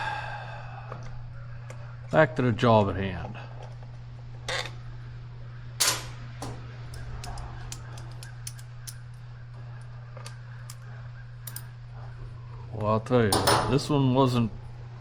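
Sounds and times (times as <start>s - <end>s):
low hum: 3.3s - 15.0s
hand tools clinking on metal: 11.5s - 11.7s.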